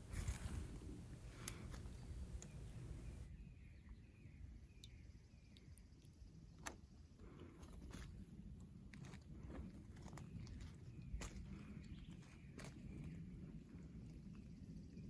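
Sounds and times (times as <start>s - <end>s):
soft bird chirps: 0.0s - 7.1s.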